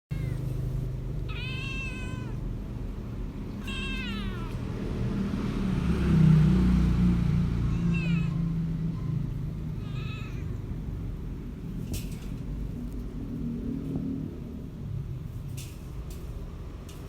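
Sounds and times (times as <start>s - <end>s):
cats yowling: 0.1s - 2.6s, 3.5s - 4.8s, 7.6s - 10.8s.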